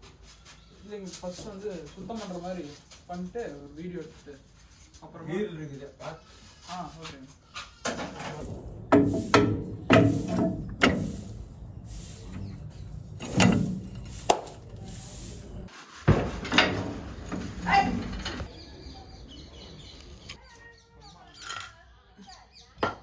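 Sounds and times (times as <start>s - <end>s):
objects knocking and clunking: 7.8s - 18.5s.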